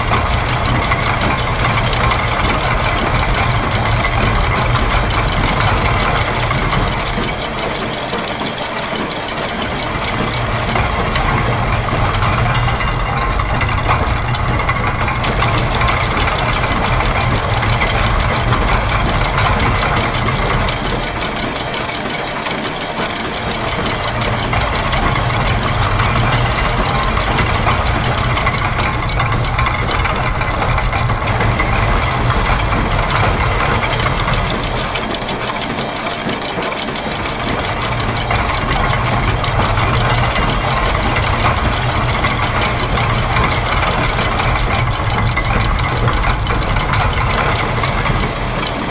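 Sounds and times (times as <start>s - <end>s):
mechanical clatter: 0.0s - 48.9s.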